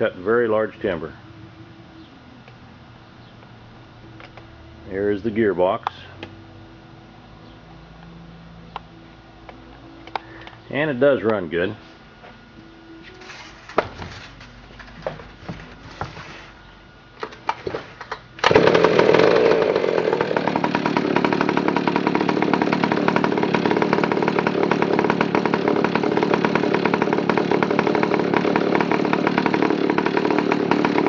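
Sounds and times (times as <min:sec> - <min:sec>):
chainsaw engine running: 0:18.4 - 0:31.0.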